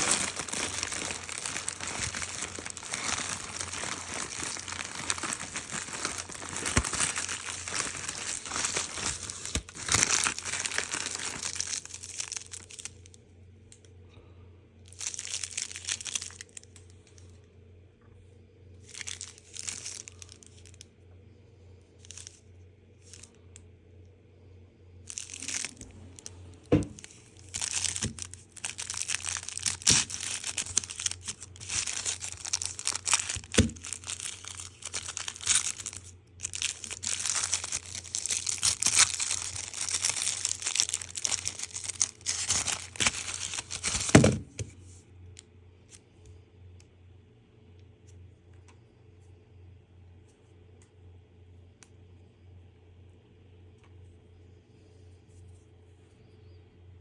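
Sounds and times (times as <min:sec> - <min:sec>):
packaging crinkling and tearing: 0:00.0 - 0:13.1, 0:14.9 - 0:17.2, 0:18.8 - 0:20.8, 0:22.0 - 0:22.4, 0:23.1 - 0:23.3, 0:25.1 - 0:44.8.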